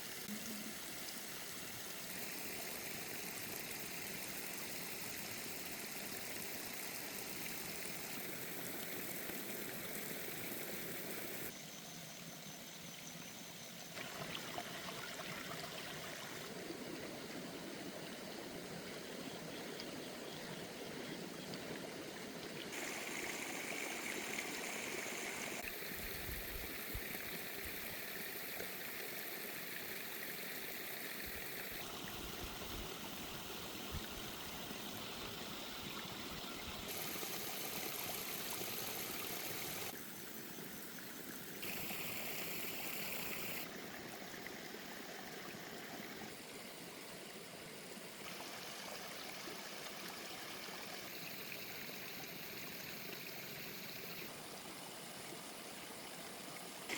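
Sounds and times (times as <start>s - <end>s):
stream water rushing: 20.7s - 40.0s.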